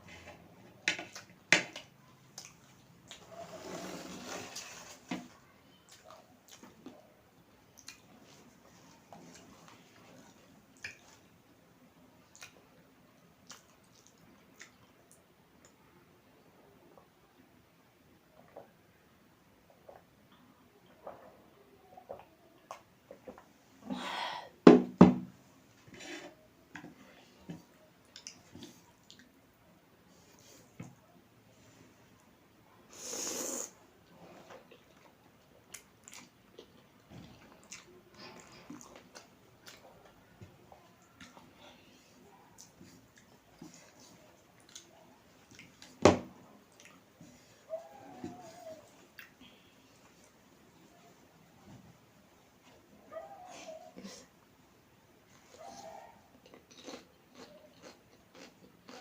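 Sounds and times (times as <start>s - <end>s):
loud noodle slurp: 3.3s - 5.0s
chewing: 7.8s - 11.3s, 13.4s - 15.8s, 34.0s - 46.0s, 55.3s - 59.0s
person chewing noodles: 34.4s - 39.9s, 56.4s - 59.0s.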